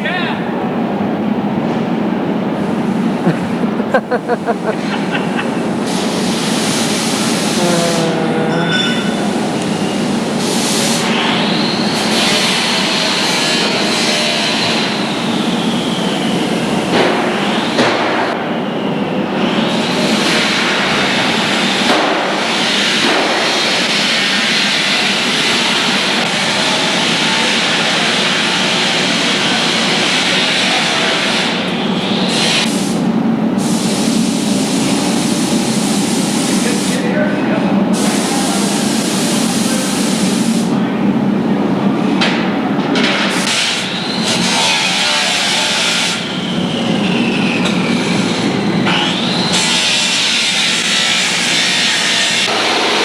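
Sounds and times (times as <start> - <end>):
higher hiss: 3.2 - 11.2
low drone: 7.1 - 10.5.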